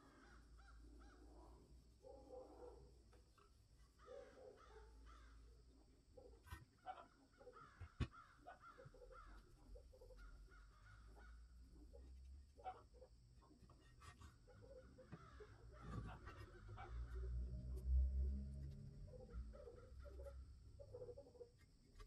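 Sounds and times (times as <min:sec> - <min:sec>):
faint bird calls: 0:00.0 - 0:01.6, 0:03.9 - 0:17.6.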